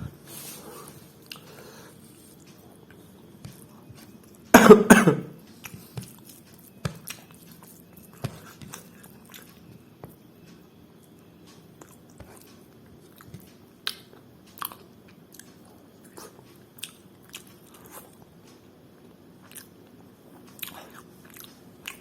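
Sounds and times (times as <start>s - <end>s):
person coughing: 4.5s - 5.4s
chewing mouth sounds: 11.8s - 18.2s.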